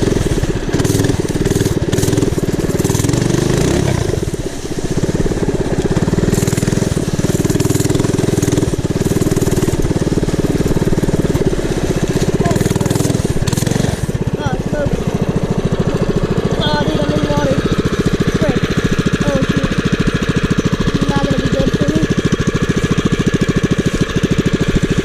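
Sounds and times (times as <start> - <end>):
tyre churning through dry leaves: 0.0 - 19.2
mini bike engine revving: 0.0 - 25.0.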